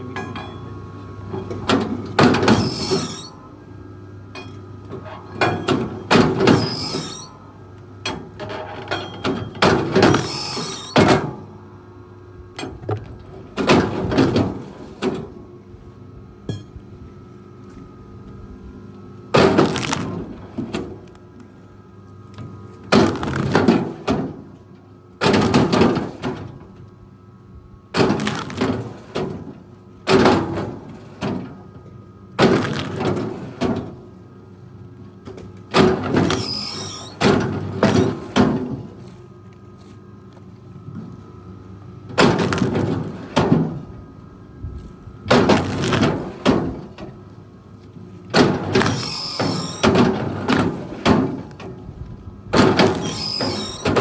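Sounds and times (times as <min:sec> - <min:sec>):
wood splintering and breaking: 0:19.5 - 0:20.2, 0:28.1 - 0:28.6.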